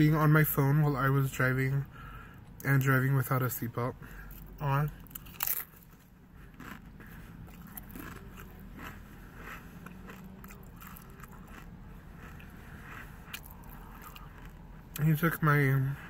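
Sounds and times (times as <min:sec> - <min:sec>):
chewing crunchy chips: 0:04.3 - 0:15.5.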